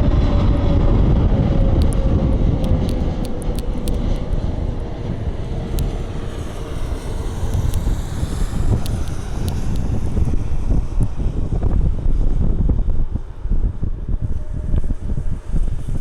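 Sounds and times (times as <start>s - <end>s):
jet engines rumbling and whining: 0.0s - 16.0s
wind buffeting microphone: 0.0s - 16.0s
faint sharp ticks: 1.8s - 2.0s, 2.6s - 4.5s, 7.5s - 9.9s.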